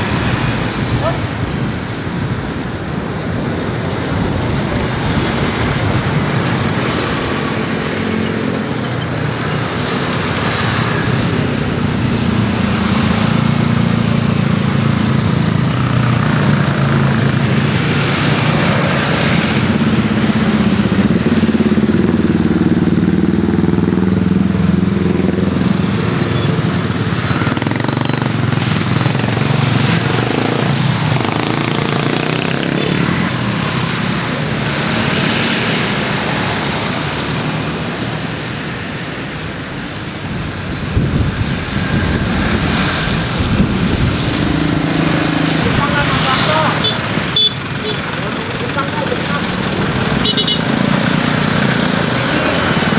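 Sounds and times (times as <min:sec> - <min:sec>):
engine humming: 0:00.0 - 0:37.6, 0:40.8 - 0:52.9.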